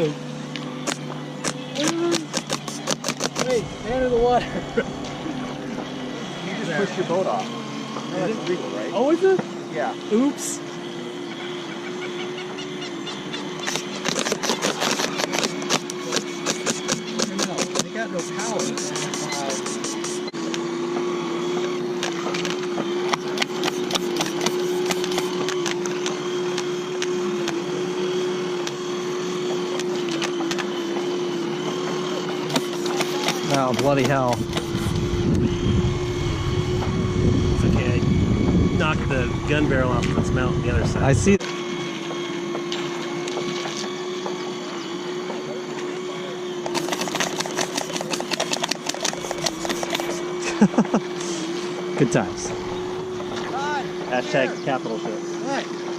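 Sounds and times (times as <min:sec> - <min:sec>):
small electric motor humming: 0:00.0 - 0:55.9
sharp clicks and cracks: 0:00.6 - 0:03.6.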